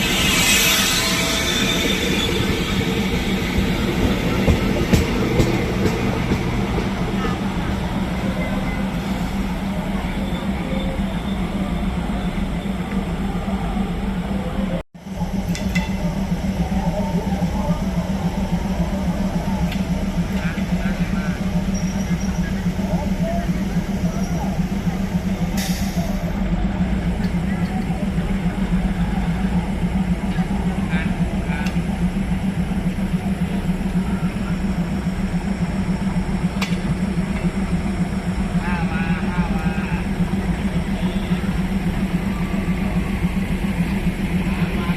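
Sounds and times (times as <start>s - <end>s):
diesel railcar engine running: 0.0s - 44.9s.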